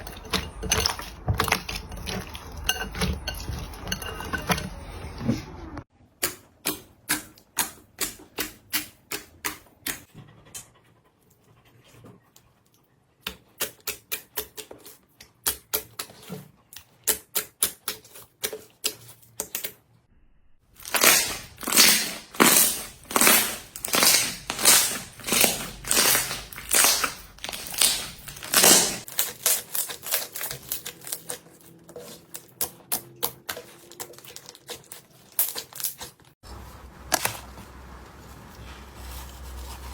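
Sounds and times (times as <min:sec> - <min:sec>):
slime squishing by hand: 0:20.8 - 0:39.9.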